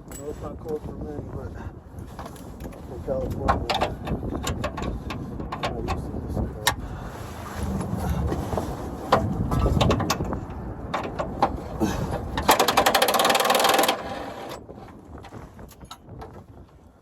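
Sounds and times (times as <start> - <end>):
wind rumble on microphone: 0.0 - 17.0
sharp clicks and knocks: 2.2 - 6.0, 9.1 - 11.6, 12.2 - 14.6
wrench rattling on bolt: 12.4 - 14.6.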